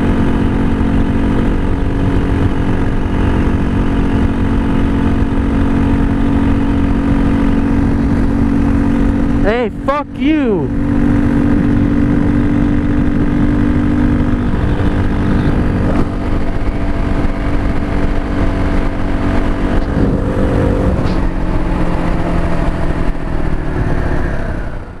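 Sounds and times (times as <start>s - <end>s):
wind rushing over microphone: 0.0s - 9.5s, 10.7s - 25.0s
motorcycle engine cruising: 0.0s - 25.0s.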